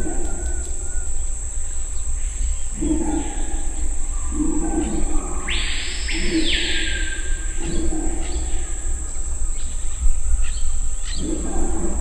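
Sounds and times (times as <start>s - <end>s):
howler monkeys roaring: 0.0s - 1.1s, 2.7s - 9.3s, 11.1s - 12.0s
forest insects droning: 0.0s - 12.0s.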